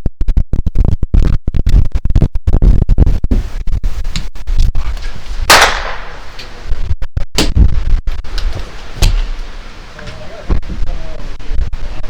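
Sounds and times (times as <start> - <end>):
airsoft guns firing in bursts: 5.0 - 6.7.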